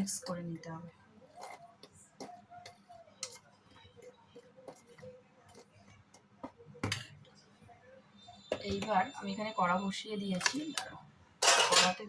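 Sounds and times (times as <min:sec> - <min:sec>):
spoon scraping a bowl: 0:01.3 - 0:05.8.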